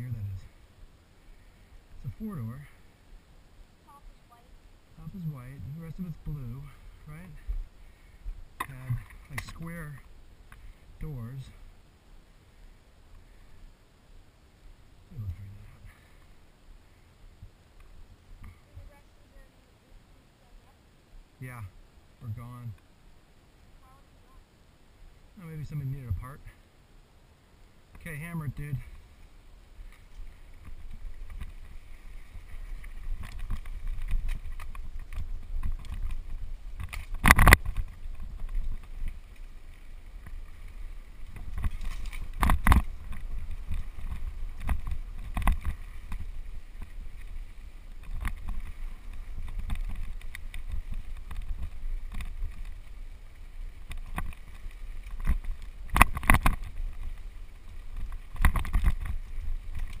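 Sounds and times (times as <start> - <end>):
wind rumble on microphone: 28.0 - 60.0
bike rattling over bumps: 29.9 - 60.0.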